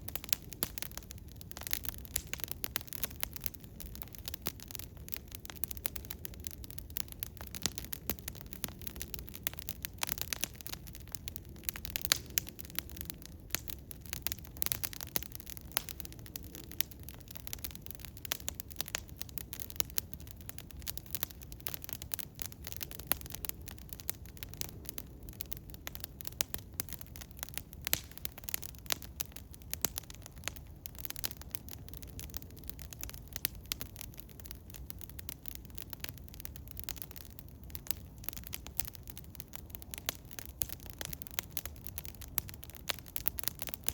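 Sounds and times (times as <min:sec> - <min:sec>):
wood fire crackling: 0:00.0 - 0:43.9.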